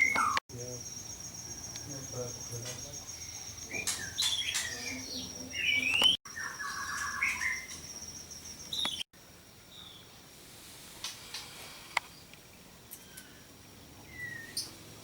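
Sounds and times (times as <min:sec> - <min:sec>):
songbirds chirping and whistling: 0:00.0 - 0:09.1, 0:12.9 - 0:15.0.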